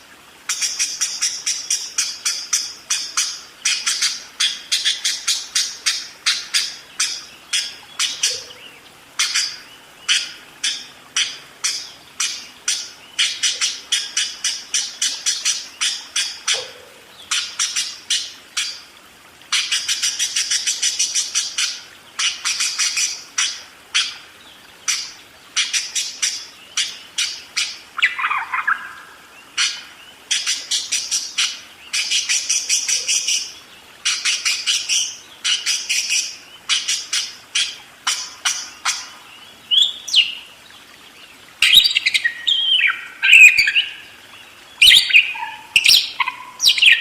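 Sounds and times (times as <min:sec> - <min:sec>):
budgerigar chattering: 0:44.8 - 0:47.0.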